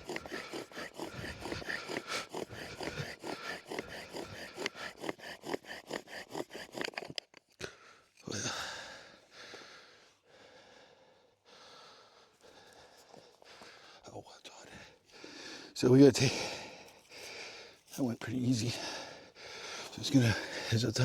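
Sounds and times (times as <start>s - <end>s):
bow drill sawing against wood: 0.0s - 7.6s, 15.0s - 21.0s
person breathing hard: 0.0s - 14.0s, 14.7s - 17.9s, 18.6s - 20.9s.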